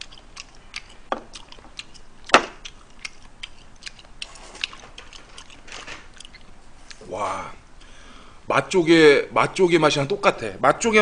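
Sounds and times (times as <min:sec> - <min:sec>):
wet chewing clicks: 0:00.0 - 0:07.0.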